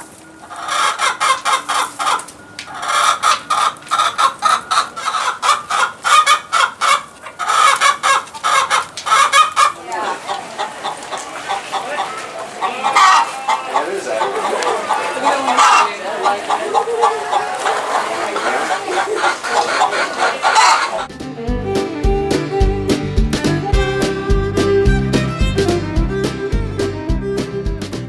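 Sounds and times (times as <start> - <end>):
chickens clucking: 0.0 - 21.1.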